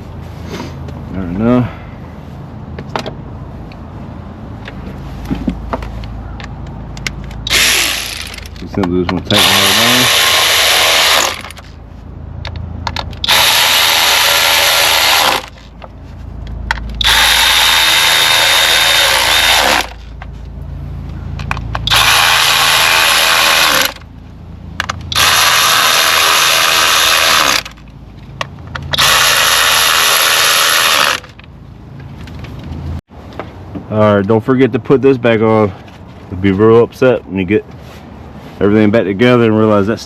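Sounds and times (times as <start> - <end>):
power driver spinning bolts: 7.0 - 11.7, 12.4 - 15.8, 16.7 - 20.2, 21.3 - 24.1, 24.8 - 31.5.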